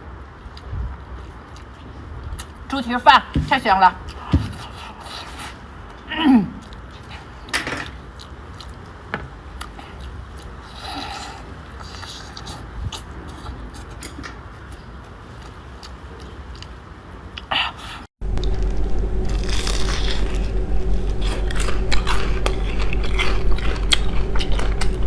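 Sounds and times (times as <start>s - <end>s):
chewing with wet mouth clicks: 0.5s - 2.6s, 5.9s - 9.0s, 9.6s - 17.5s, 21.5s - 25.0s
steady hum: 17.6s - 25.0s.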